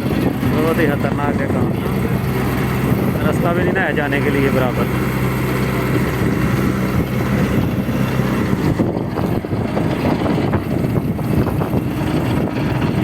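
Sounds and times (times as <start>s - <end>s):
loader diesel engine running: 0.0s - 13.0s.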